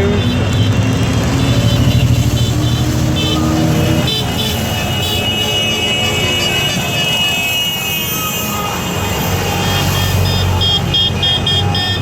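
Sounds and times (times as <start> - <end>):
motorcycle engine running: 0.0 - 4.5.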